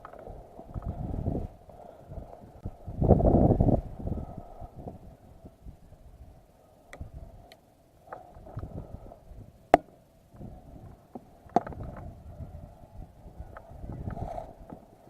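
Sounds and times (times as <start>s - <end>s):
low rustling of movement: 10.3s - 15.0s.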